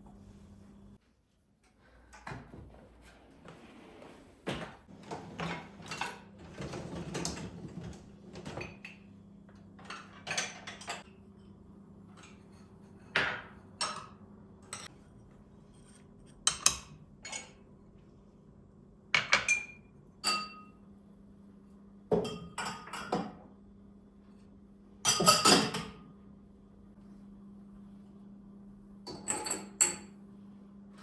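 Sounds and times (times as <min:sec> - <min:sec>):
dishes and cutlery clinking: 0:19.2 - 0:20.7, 0:25.1 - 0:26.0, 0:29.1 - 0:30.1.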